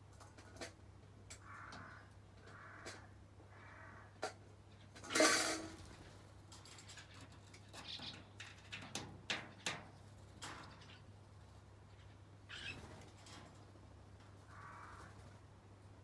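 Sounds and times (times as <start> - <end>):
birds pecking kibble in a bowl: 0.1 - 3.0, 4.2 - 11.1.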